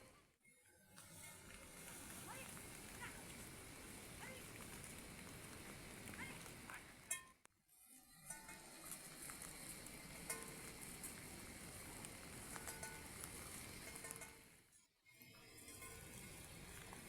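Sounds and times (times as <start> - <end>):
heavy rain hiss: 1.0 - 7.1, 8.6 - 14.6
raindrop ticks: 1.0 - 7.2, 8.3 - 14.4.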